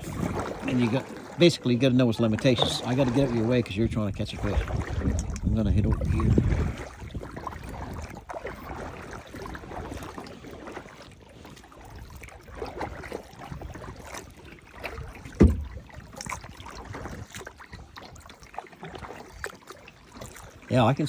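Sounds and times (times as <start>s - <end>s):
paddle splashing in water: 0.0s - 21.0s
loud thump: 15.4s - 15.8s
small knocks: 15.4s - 15.8s.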